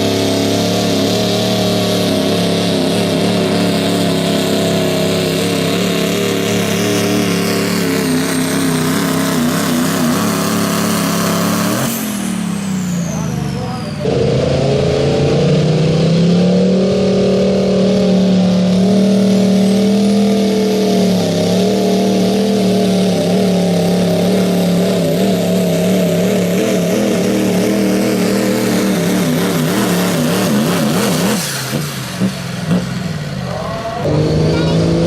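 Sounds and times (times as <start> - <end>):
truck engine revving under load: 0.0 - 35.0.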